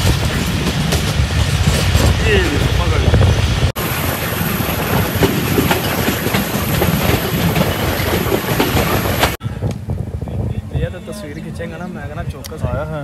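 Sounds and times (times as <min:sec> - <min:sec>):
wheel clatter over track: 0:00.0 - 0:09.4
train rumbling on rails: 0:00.0 - 0:12.3.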